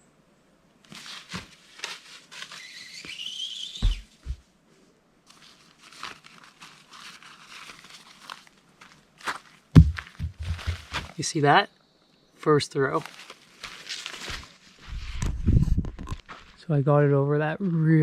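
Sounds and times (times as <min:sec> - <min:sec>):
rope sliding over branch: 0:00.8 - 0:09.0, 0:12.9 - 0:15.7
rope squealing: 0:02.3 - 0:04.3
heavy thud: 0:09.8 - 0:11.2.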